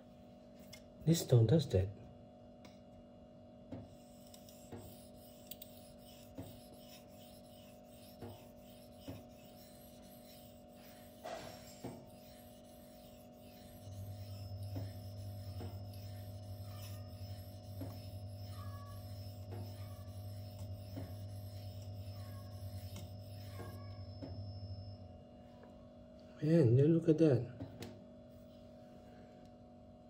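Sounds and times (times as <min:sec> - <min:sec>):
steady low hum: 0:00.0 - 0:30.0
knife blade scraping on stone: 0:04.0 - 0:23.9.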